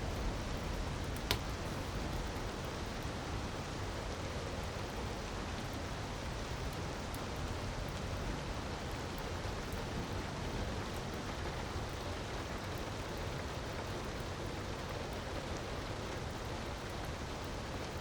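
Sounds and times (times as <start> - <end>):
wood fire crackling: 0.5 - 3.0.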